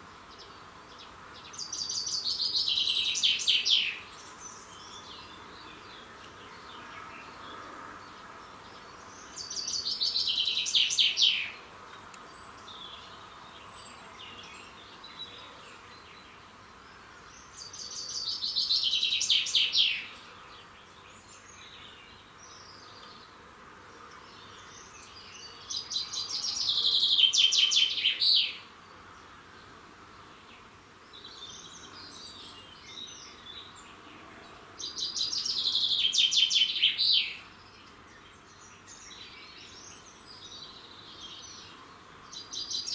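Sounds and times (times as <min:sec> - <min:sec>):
songbird trill: 0:00.0 - 0:23.4, 0:24.1 - 0:42.9.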